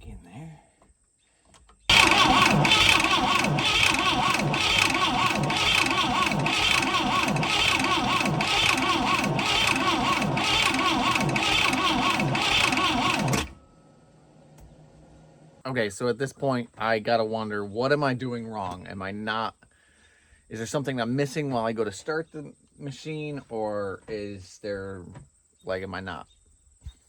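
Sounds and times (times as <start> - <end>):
boat engine cranking: 1.9 - 13.6.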